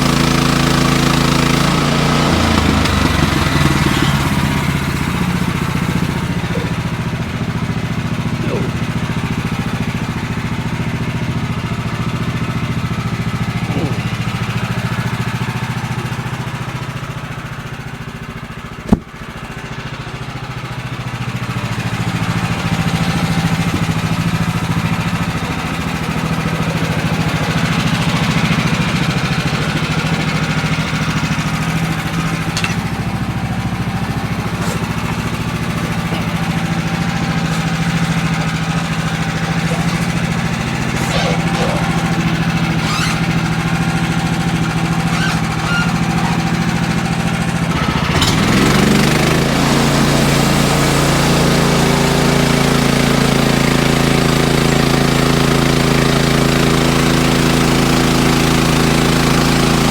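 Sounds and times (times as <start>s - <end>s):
sawmill engine running: 0.0s - 59.9s.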